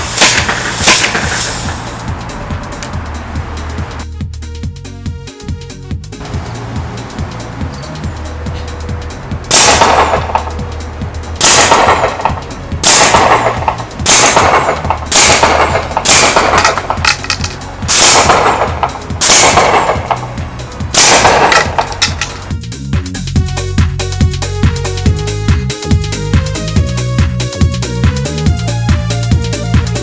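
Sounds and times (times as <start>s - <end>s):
hiss of escaping air: 0.0s - 2.0s
air cannon blasts: 0.0s - 2.1s, 9.5s - 10.6s, 11.4s - 17.0s, 17.7s - 22.6s.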